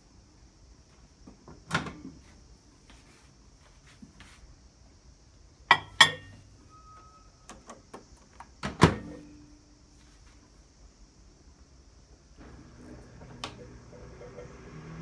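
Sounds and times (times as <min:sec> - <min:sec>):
short beep: 0:06.6 - 0:07.5
microwave humming: 0:12.3 - 0:15.0.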